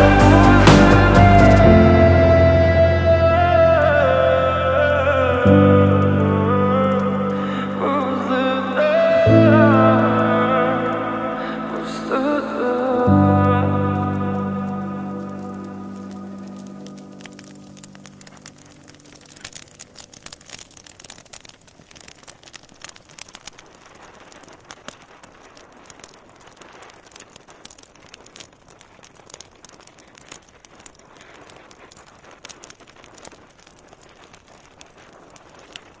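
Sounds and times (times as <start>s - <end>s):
held music tone: 0.0s - 18.4s
fire crackling in a fireplace: 0.0s - 36.0s.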